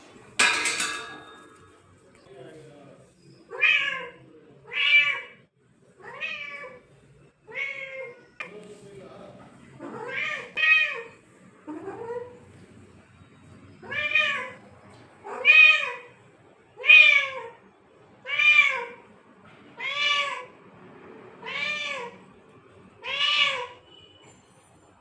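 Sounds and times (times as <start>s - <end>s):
cat meowing: 3.5s - 5.4s, 6.0s - 6.8s, 7.5s - 8.2s, 13.8s - 14.6s, 15.2s - 16.1s, 16.8s - 17.6s, 18.2s - 19.0s, 19.8s - 20.5s, 21.4s - 22.2s, 23.0s - 23.8s.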